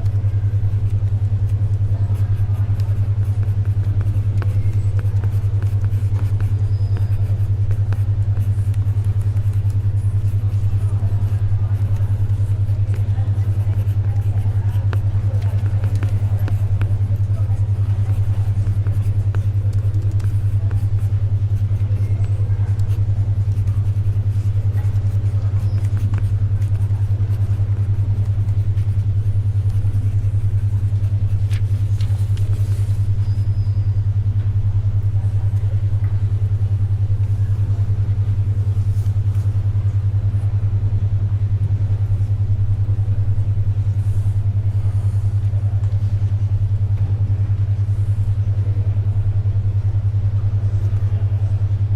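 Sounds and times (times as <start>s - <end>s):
soft clicks of pages and pencil: 0.0s - 33.6s, 45.4s - 46.4s
library ambience: 0.0s - 51.9s
pulsing low hum tone: 0.0s - 51.9s.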